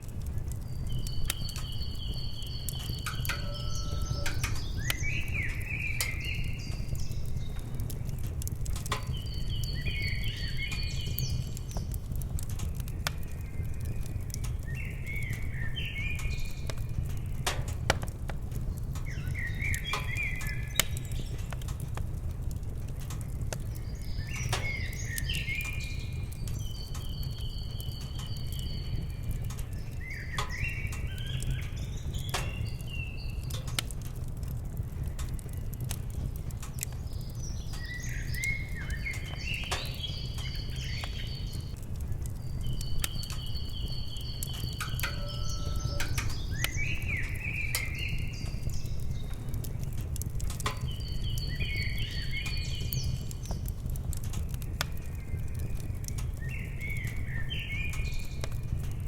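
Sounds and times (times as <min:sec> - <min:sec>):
wood fire crackling and popping: 0:00.0 - 0:59.0
songbird whistling: 0:00.9 - 0:07.2, 0:42.8 - 0:49.2.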